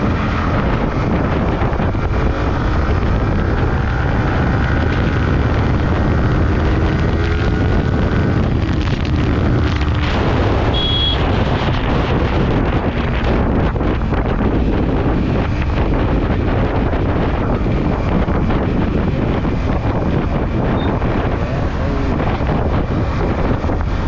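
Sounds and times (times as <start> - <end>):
motorcycle engine: 0.0 - 24.0
passing traffic: 0.0 - 24.0
wind buffeting microphone: 0.0 - 24.0
short high beep: 10.7 - 11.2.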